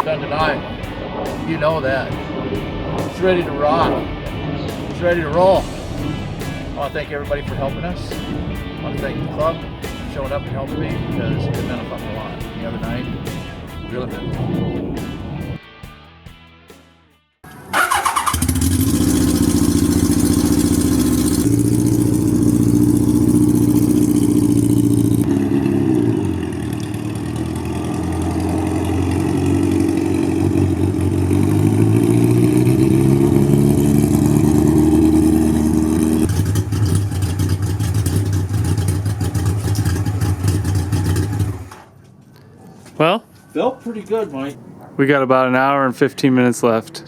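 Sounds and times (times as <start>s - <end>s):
motorcycle engine revving: 17.4s - 41.9s.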